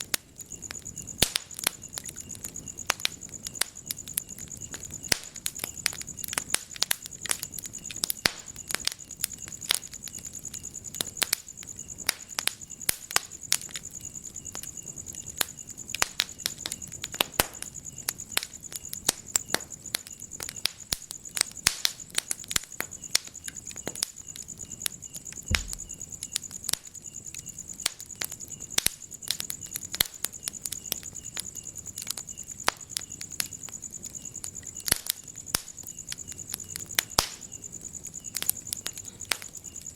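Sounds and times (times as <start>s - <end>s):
wood fire crackling: 0.0s - 39.9s
low thud: 25.5s - 25.9s.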